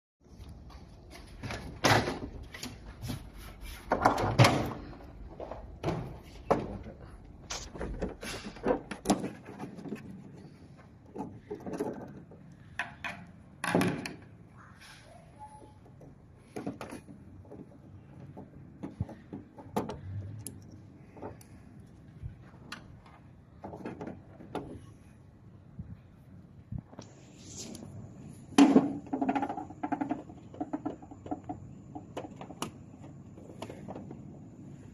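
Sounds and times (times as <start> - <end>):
hard objects knocking and scraping: 7.5 - 14.3, 15.9 - 21.7, 28.5 - 34.6.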